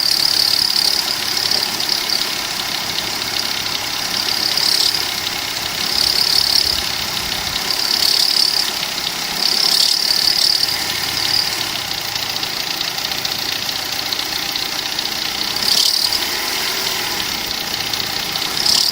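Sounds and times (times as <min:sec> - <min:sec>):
car engine idling: 0:00.0 - 0:18.9
high-pitched engine squeal: 0:00.0 - 0:18.9.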